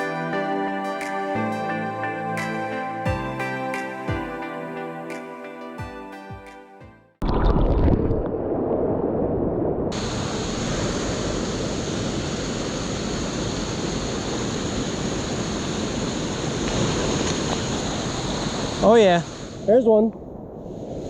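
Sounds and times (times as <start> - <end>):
water rushing over rocks: 9.9 - 19.3.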